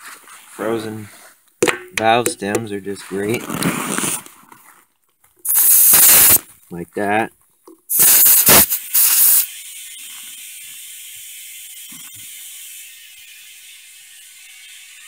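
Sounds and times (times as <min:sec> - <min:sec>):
air hissing into tire: 0:05.4 - 0:06.4, 0:07.9 - 0:13.9
bursts of escaping air: 0:05.4 - 0:06.5, 0:07.9 - 0:15.0.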